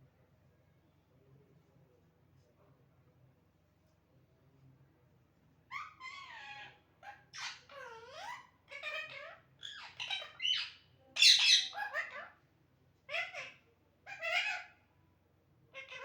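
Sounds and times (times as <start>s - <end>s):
parrot squawking and chattering: 5.7s - 12.4s, 13.1s - 14.8s, 15.7s - 16.0s.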